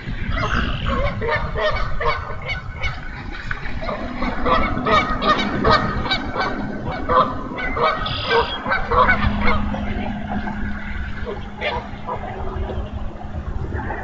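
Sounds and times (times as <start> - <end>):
steady low hum: 0.0 - 14.0
bird calls: 7.6 - 10.0.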